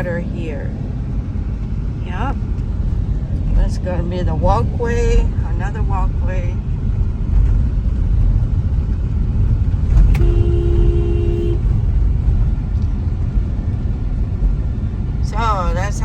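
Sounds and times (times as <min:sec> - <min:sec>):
car engine and tyre rumble: 0:00.0 - 0:16.0
vehicle horn toot: 0:10.0 - 0:11.8.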